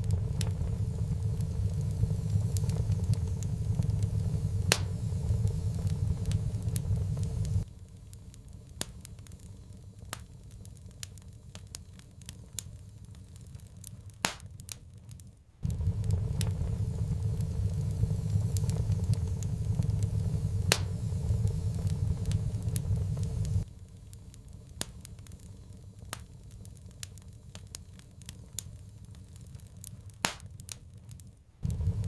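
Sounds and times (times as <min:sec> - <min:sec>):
low rumble: 0:00.0 - 0:08.1, 0:15.6 - 0:23.7, 0:31.6 - 0:32.0
wood fire crackling: 0:00.0 - 0:32.0.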